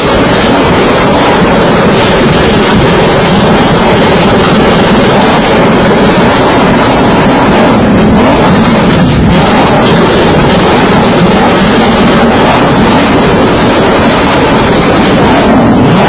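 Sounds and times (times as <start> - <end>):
distorted vehicle noise: 0.0 - 16.0.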